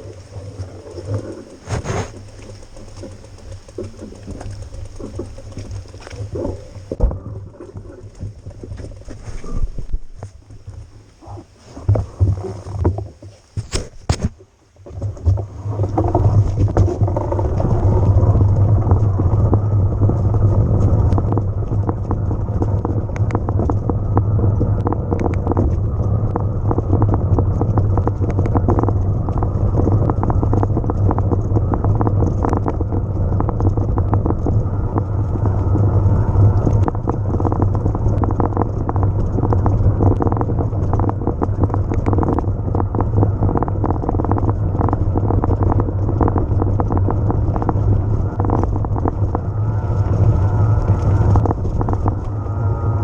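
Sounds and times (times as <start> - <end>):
tyre noise on rough ground: 0.0 - 52.5
bike rattling over bumps: 0.0 - 53.0
wind on microphone: 0.0 - 53.0.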